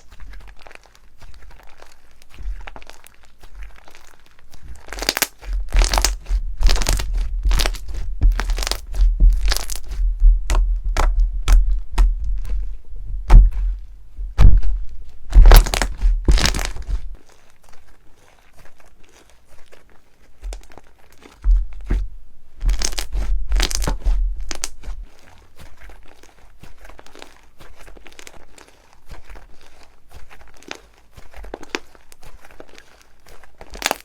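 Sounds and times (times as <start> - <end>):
slime crackling and popping: 0.0 - 12.7, 14.4 - 34.0
soft thuds: 5.4 - 17.2, 21.4 - 25.2.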